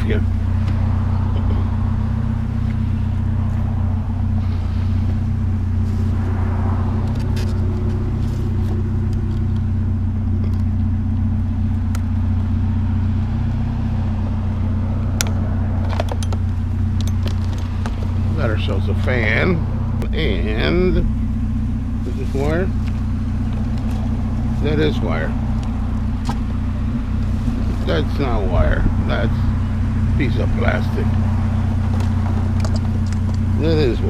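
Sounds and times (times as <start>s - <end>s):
car engine running: 0.0s - 34.0s.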